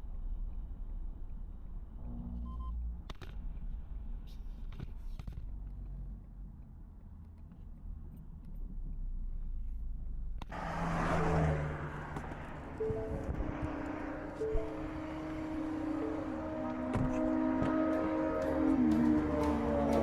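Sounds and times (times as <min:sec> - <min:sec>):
fuller sound with steady tones: 0:00.0 - 0:20.0
truck engine and road rumble: 0:00.0 - 0:20.0.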